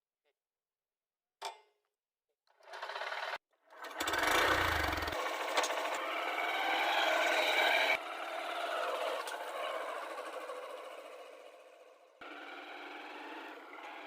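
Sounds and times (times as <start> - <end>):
tractor diesel engine clattering: 2.7 - 6.3.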